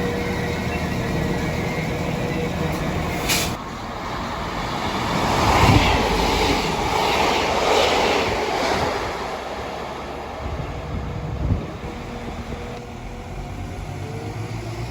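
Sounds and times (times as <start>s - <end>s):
train passing: 0.0s - 14.9s.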